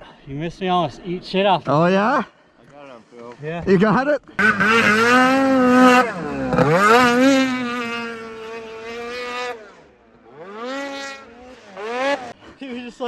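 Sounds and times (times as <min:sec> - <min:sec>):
snowmobile engine revving: 0:04.4 - 0:12.4.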